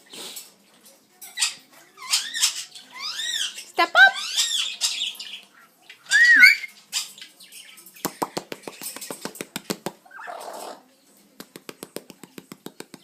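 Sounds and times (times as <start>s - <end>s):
parrot whistling and calling: 6.0s - 6.7s.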